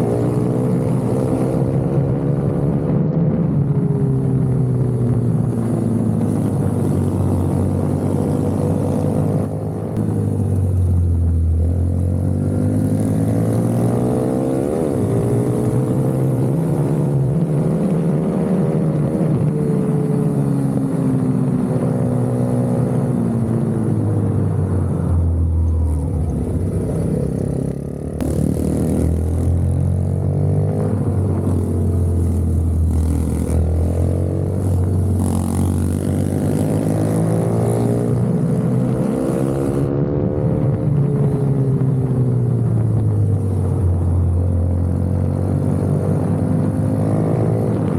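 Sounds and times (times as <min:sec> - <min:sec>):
minibike engine revving: 0:26.1 - 0:40.0.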